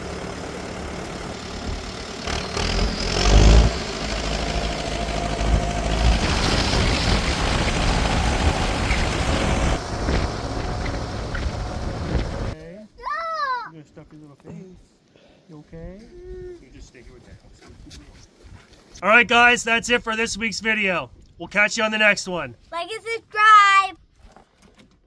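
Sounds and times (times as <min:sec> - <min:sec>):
tractor engine running: 0:00.0 - 0:12.6.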